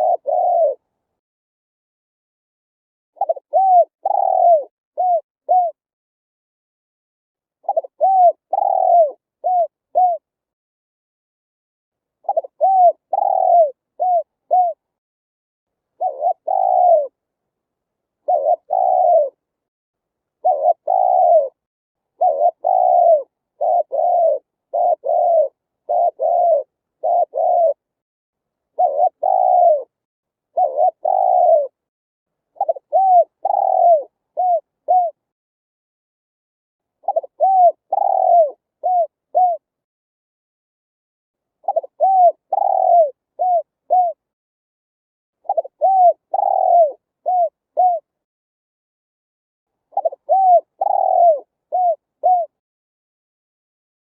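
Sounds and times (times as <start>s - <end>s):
dove cooing: 0.0s - 0.8s, 3.2s - 5.8s, 7.6s - 10.3s, 12.2s - 14.8s, 16.0s - 17.2s, 18.2s - 19.4s, 20.4s - 21.6s, 22.2s - 27.9s, 28.8s - 31.8s, 32.6s - 35.2s, 37.0s - 39.7s, 41.6s - 44.2s, 45.4s - 48.1s, 49.9s - 52.6s.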